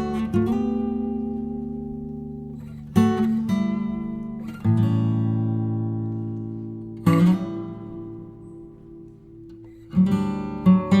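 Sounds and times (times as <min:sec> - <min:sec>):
acoustic guitar chords ringing: 0:00.0 - 0:11.0.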